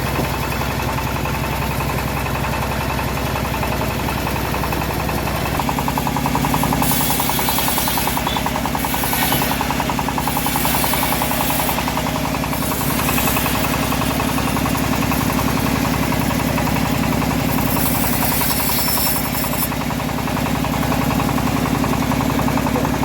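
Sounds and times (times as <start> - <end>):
sawmill engine running: 0.0 - 23.0.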